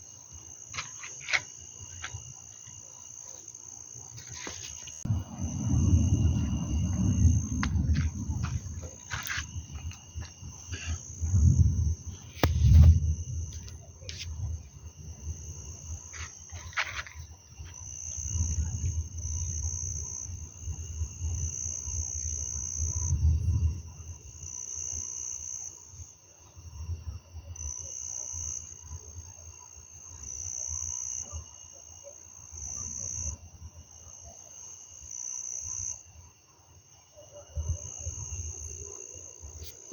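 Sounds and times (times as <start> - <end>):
insects chirping: 0.0 - 39.9
thunder rumbling: 5.0 - 15.7.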